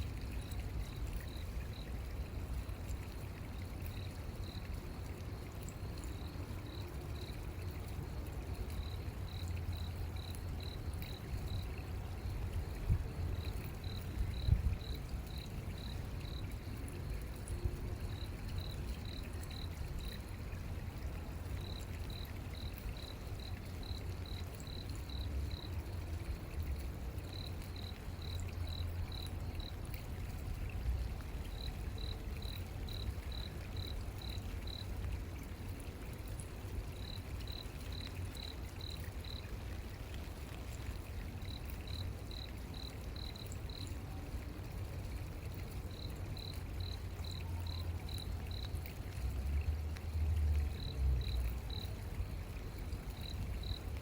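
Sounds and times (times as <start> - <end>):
cricket chirping: 8.6 - 12.8, 13.4 - 20.3, 21.5 - 26.0, 26.6 - 29.8, 31.4 - 34.9, 37.0 - 39.5, 41.4 - 43.9, 45.5 - 48.7, 50.7 - 54.0.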